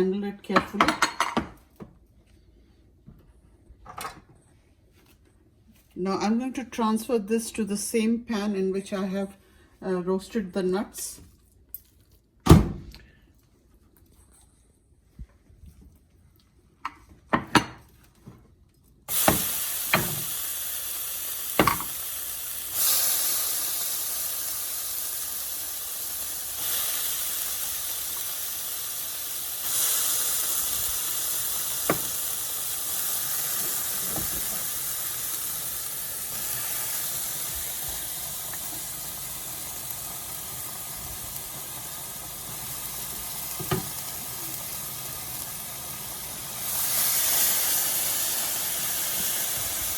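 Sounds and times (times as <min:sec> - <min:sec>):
food sizzling in a hot pan: 0:19.1 - 0:49.9.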